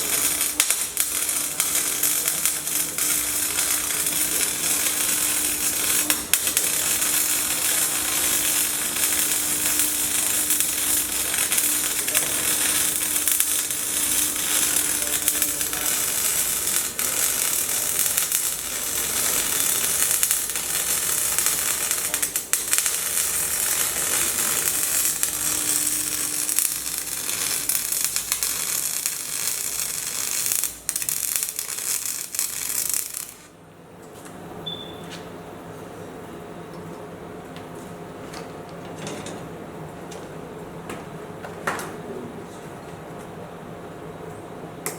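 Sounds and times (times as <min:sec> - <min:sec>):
welding arc crackling: 0:00.0 - 0:33.6.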